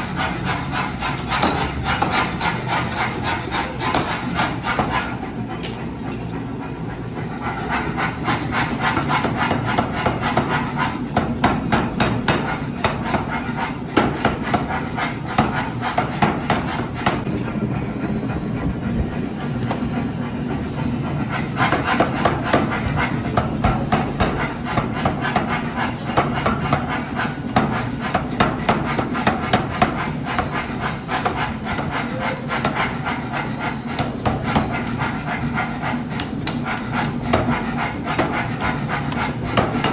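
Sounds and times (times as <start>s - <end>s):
metal scraping and rasping: 0.0s - 39.9s
hammer strikes on steel: 0.2s - 6.4s, 7.7s - 17.4s, 21.3s - 39.9s.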